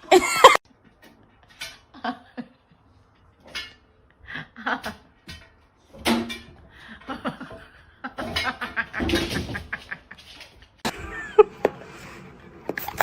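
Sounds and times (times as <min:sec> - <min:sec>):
people laughing: 0:06.8 - 0:12.0.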